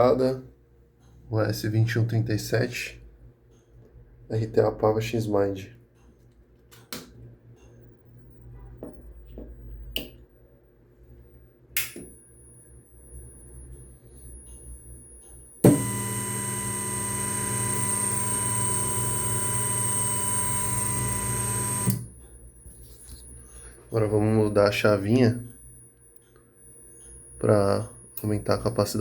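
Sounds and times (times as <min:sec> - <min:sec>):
clicks: 0:15.6 - 0:22.1
stepper motor whine: 0:15.6 - 0:22.2.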